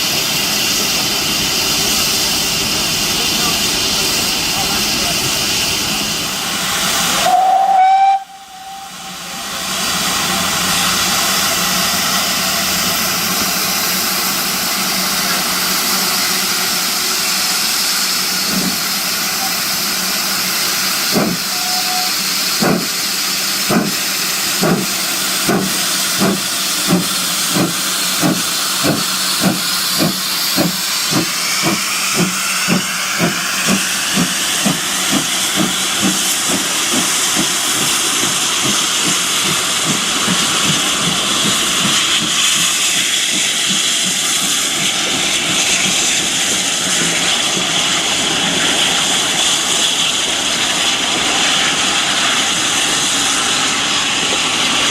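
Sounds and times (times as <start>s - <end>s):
steam hissing: 0.0s - 54.9s
steam whistle: 7.1s - 9.5s, 21.4s - 22.3s
locomotive exhaust beats: 21.0s - 47.8s.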